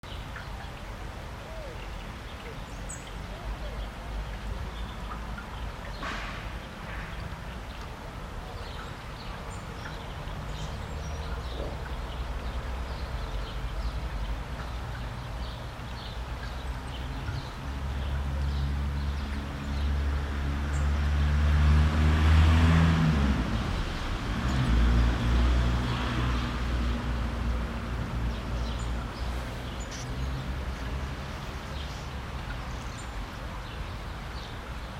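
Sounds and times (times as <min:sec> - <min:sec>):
motor vehicle passing: 0:16.7 - 0:33.1
tits chirping: 0:28.8 - 0:32.2.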